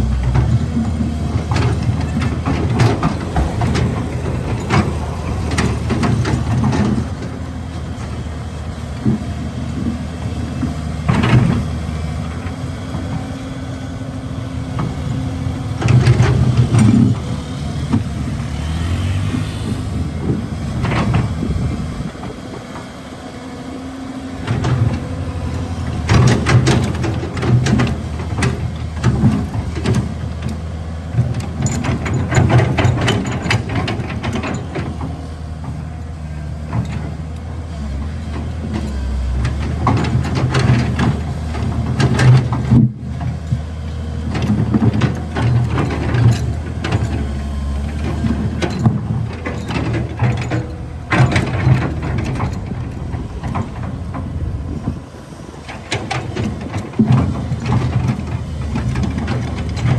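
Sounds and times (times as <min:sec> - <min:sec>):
excavator diesel engine running: 0:00.0 - 0:59.9
bucket clanking and scraping rock: 0:00.1 - 0:07.2.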